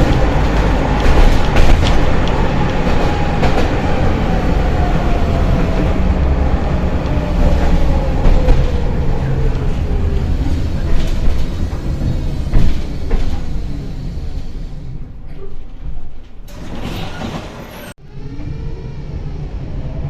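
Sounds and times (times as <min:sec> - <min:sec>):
clicks over rail joints: 0:00.0 - 0:03.8
tram rumbling on rails: 0:00.0 - 0:20.0.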